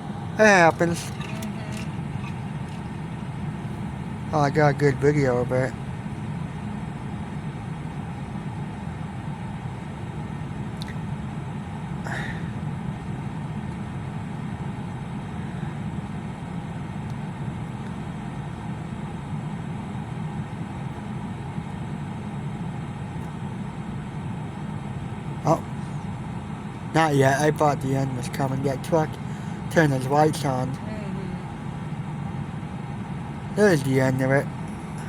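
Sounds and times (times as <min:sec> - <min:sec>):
freight train cars rolling past: 0:00.0 - 0:05.7.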